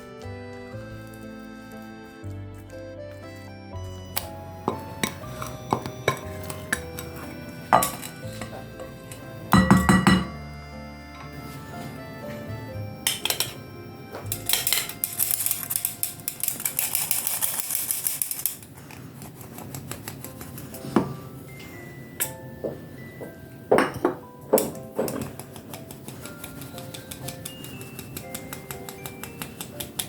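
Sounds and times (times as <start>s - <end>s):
background music: 0.0s - 17.8s, 19.8s - 30.0s
utensils clinking against a bowl: 4.6s - 10.4s, 13.1s - 13.6s, 14.2s - 18.7s, 23.2s - 30.0s.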